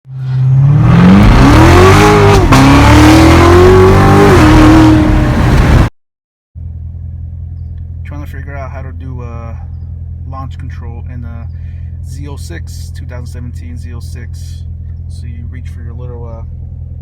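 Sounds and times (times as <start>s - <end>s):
car engine accelerating hard: 0.1s - 5.9s
car engine idling: 6.6s - 17.0s.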